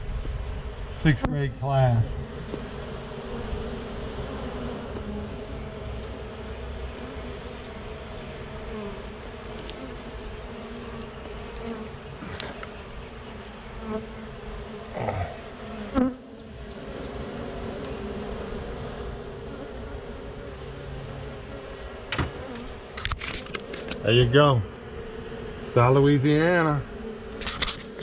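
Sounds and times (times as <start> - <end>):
bees buzzing: 0.4 - 28.0.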